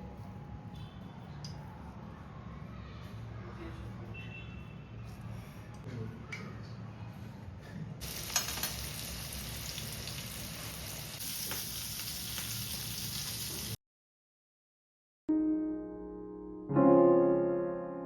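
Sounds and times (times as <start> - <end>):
food sizzling in hot oil: 8.0 - 13.8
piano music: 15.3 - 18.0.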